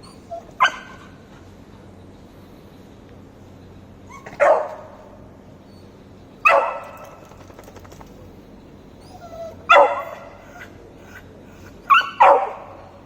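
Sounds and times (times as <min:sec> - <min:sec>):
puppy barking: 0:00.0 - 0:01.1, 0:04.1 - 0:05.1, 0:06.4 - 0:07.2, 0:09.4 - 0:11.2, 0:11.9 - 0:12.9.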